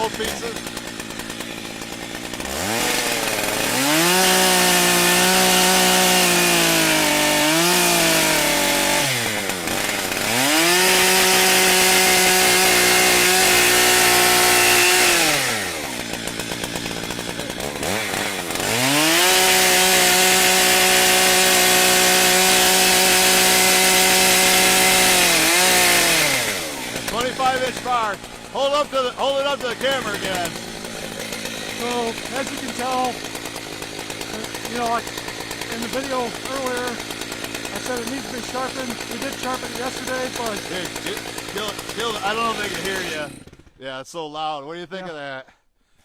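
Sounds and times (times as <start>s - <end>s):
chainsaw revving and idling: 0.0s - 43.8s.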